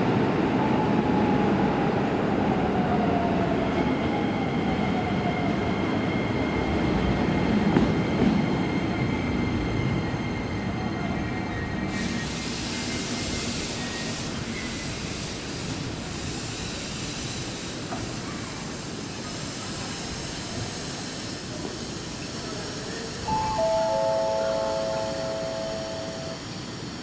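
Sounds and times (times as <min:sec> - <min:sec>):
train wheels rushing and hissing: 0:00.0 - 0:27.0
electronic tones: 0:23.3 - 0:26.4.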